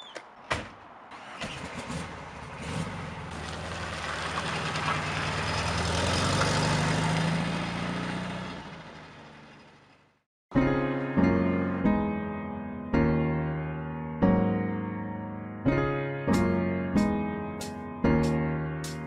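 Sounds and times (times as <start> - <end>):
car engine running: 3.3 - 10.2.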